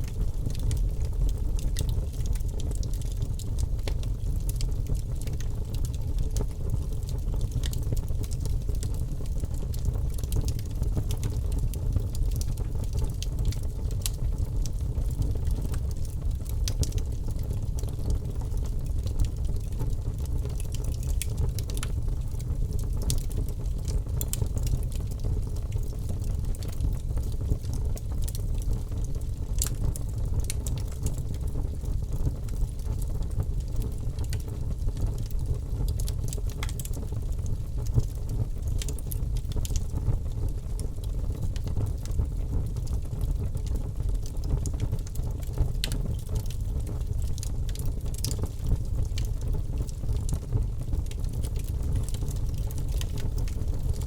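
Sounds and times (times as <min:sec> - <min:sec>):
logs burning in a fireplace: 0:00.0 - 0:54.0.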